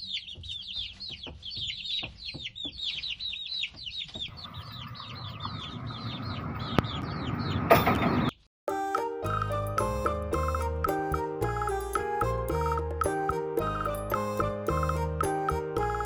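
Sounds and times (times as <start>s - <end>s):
baby chicks peeping: 0.0s - 8.4s
music: 8.7s - 16.0s.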